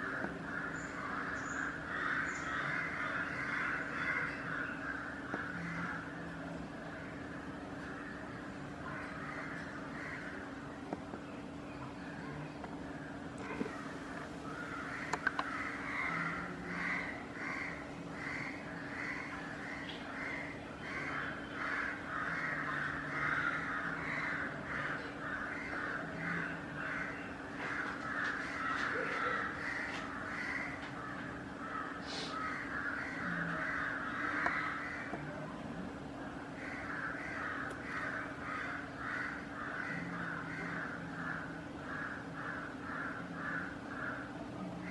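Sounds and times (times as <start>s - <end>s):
birds calling in rapid notes: 0.0s - 6.3s
steady low hum: 0.0s - 44.9s.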